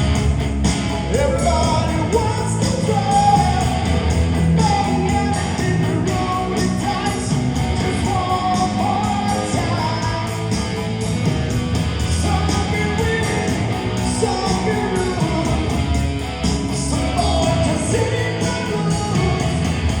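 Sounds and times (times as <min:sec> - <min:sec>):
guitar: 0:00.0 - 0:20.0
person singing: 0:04.5 - 0:10.5, 0:12.1 - 0:15.9, 0:16.5 - 0:20.0.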